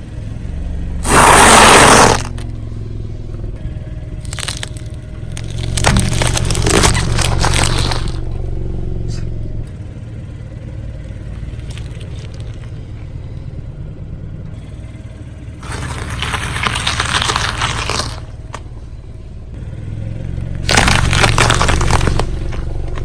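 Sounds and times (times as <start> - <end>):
car engine running: 0.0 - 23.0
tyre crunching brittle objects: 1.0 - 2.5, 4.2 - 8.2, 11.5 - 12.8, 15.6 - 18.6, 20.6 - 23.0.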